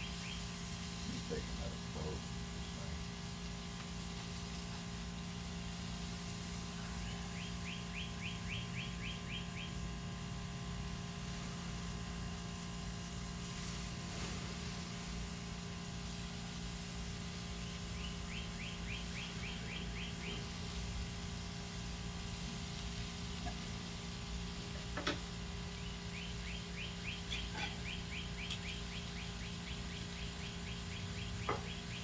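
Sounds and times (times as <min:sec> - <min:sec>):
songbird singing: 0:00.0 - 0:04.4, 0:05.4 - 0:10.2, 0:15.9 - 0:32.0
steady hiss and hum: 0:00.0 - 0:32.0.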